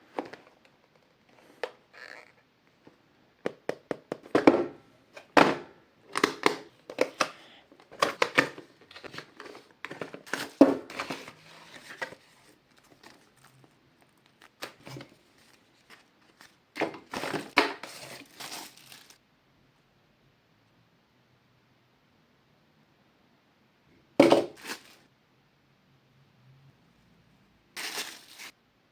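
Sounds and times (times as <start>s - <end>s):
cardboard and plastic crinkling: 7.8s - 19.2s, 27.8s - 28.5s.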